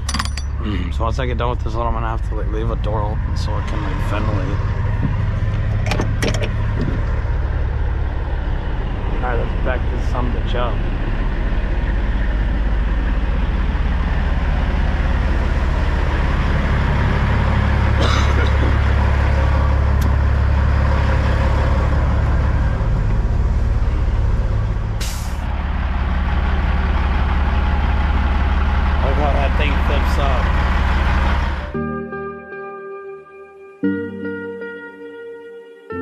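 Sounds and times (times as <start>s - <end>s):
diesel truck engine droning: 0.0s - 36.0s
air brake hisses: 25.0s - 25.4s.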